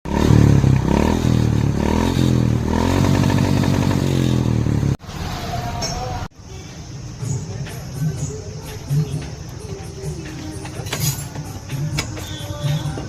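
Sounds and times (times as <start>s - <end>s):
motorcycle engine revving: 0.1s - 5.6s.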